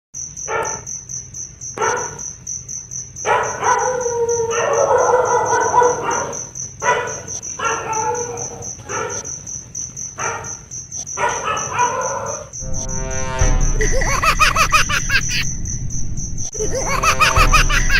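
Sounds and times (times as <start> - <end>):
dog barking and whining: 1.8 - 2.2, 3.2 - 9.3, 10.2 - 10.6, 11.2 - 12.6
high pulsing chirp: 12.6 - 17.9.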